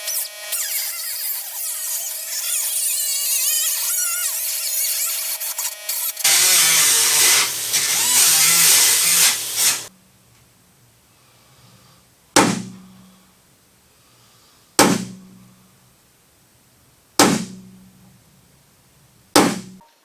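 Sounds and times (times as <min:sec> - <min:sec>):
power tool running: 0:00.0 - 0:09.9.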